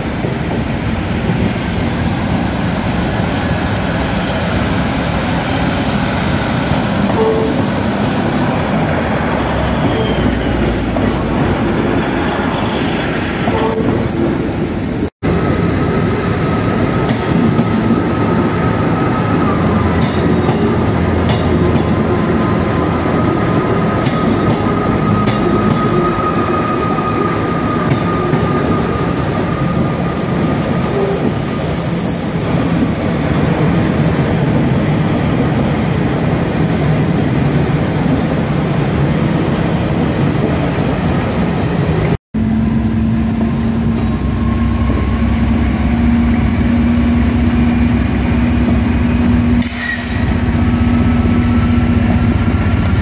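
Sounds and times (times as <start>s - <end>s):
diesel locomotive engine: 0.0s - 53.0s
train rumble and wheel noise: 0.0s - 53.0s
thin high squeal: 3.3s - 4.0s.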